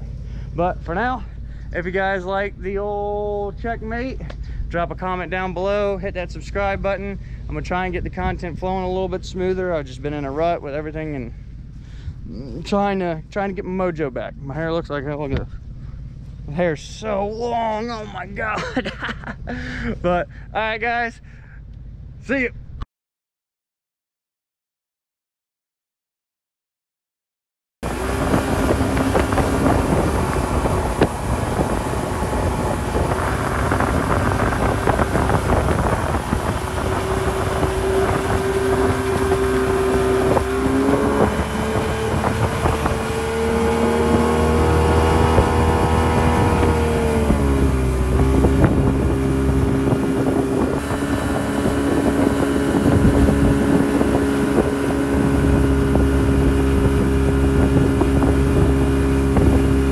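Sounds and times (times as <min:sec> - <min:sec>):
motorboat engine running: 0:00.0 - 0:22.2, 0:27.8 - 0:59.9
wind buffeting microphone: 0:01.8 - 0:11.0, 0:27.8 - 0:59.9.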